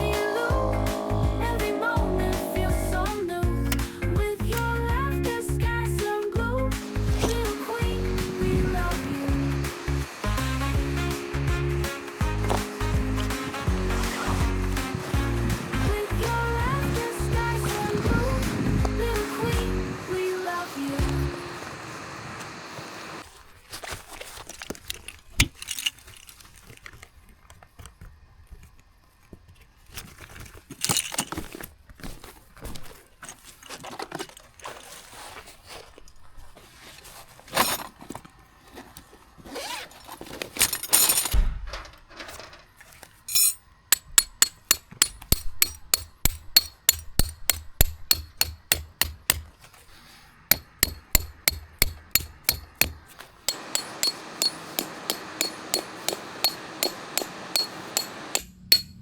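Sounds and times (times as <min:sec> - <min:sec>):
metal camping gear clinking: 0:43.2 - 0:49.6, 0:50.5 - 0:59.0
hammer striking tent stakes: 0:43.3 - 0:49.5, 0:50.5 - 0:59.0.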